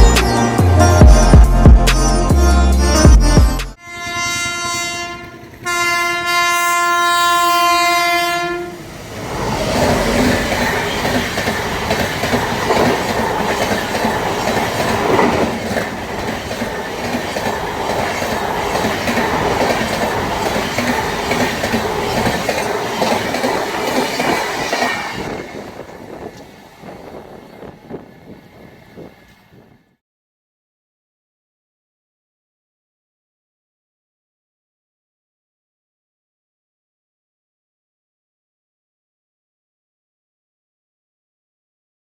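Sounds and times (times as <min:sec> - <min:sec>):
train horn long blast: 0:02.1 - 0:08.9
train rushing past: 0:07.6 - 0:29.9
wheels clattering over rail joints: 0:08.8 - 0:27.0.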